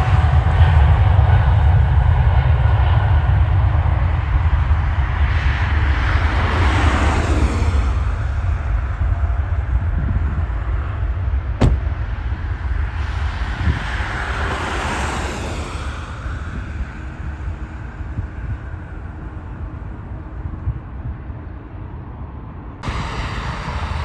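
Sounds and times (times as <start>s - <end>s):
jet engines rumbling: 10.5s - 12.9s, 22.8s - 24.0s.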